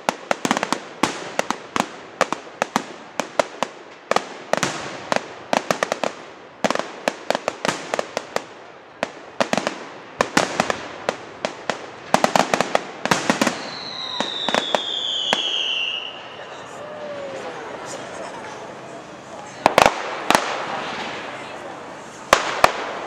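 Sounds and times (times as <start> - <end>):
fireworks cracking and banging: 0.0 - 23.0
whistling firework: 12.1 - 17.6.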